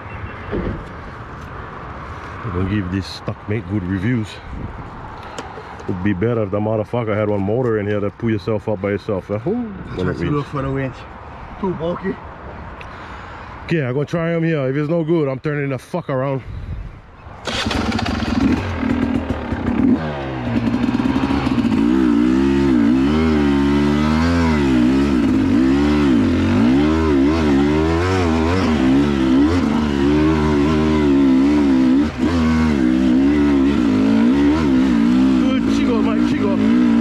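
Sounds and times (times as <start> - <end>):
dirt bike engine revving: 17.4 - 37.0.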